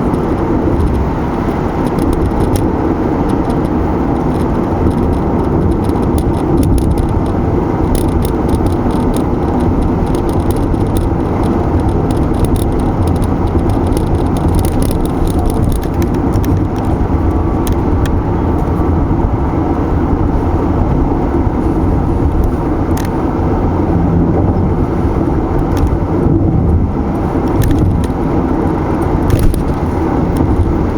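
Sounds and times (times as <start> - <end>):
small clicks and rattles: 0.0 - 18.9, 21.6 - 23.2, 24.9 - 30.9
car tyre and engine rumble: 0.0 - 30.9.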